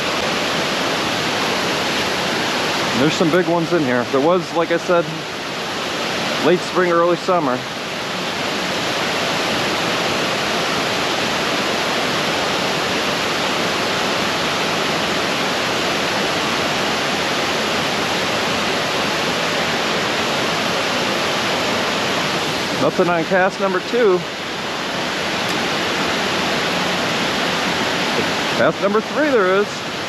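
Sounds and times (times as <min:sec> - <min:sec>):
creek water rushing over falls: 0:00.0 - 0:30.0.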